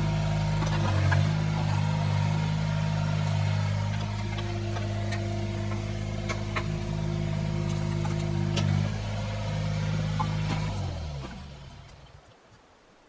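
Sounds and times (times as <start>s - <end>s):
diesel engine running: 0.0s - 12.3s.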